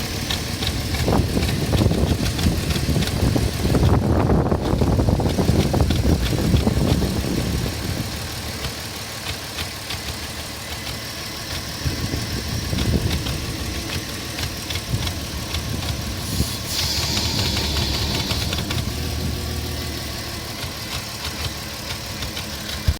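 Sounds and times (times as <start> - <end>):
car engine idling with ticking: 0.0 - 22.9
brief hiss: 16.2 - 19.2.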